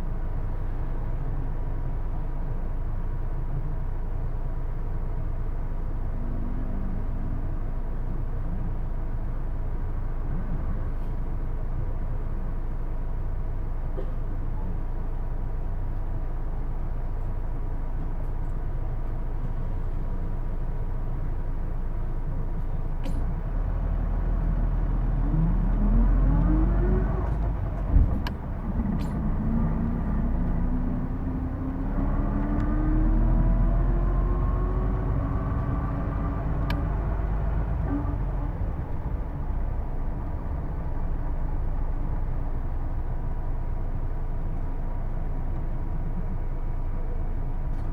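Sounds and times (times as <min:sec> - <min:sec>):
bus engine and driveline whine: 0:00.0 - 0:47.9
bus engine rumble: 0:00.0 - 0:47.9
clunk: 0:27.8 - 0:29.4.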